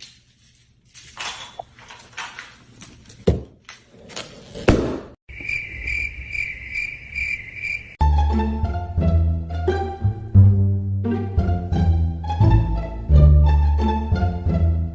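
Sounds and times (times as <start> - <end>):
pulsing high chirping: 5.3 - 8.0.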